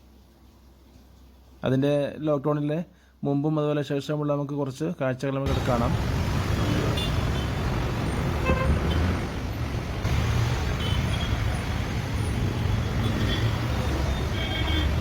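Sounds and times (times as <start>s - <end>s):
vehicles rumbling: 5.5s - 15.0s
horn toot: 8.4s - 9.1s.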